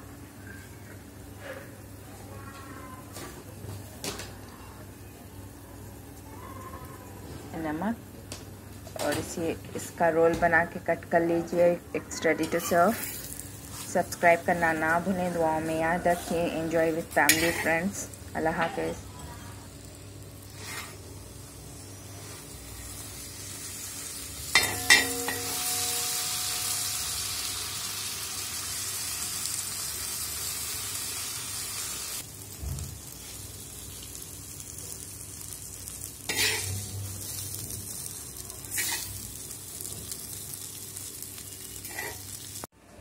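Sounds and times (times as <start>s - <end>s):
paratha sizzling on a griddle: 12.4s - 42.7s
metal spatula clacking on griddle: 24.5s - 25.8s.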